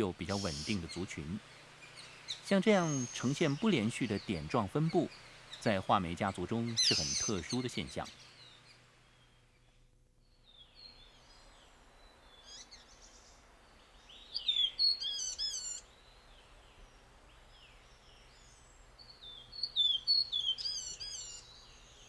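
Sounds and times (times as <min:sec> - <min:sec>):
birds whistling calls: 0:00.0 - 0:05.8, 0:06.5 - 0:09.3, 0:14.0 - 0:15.9, 0:17.5 - 0:22.0.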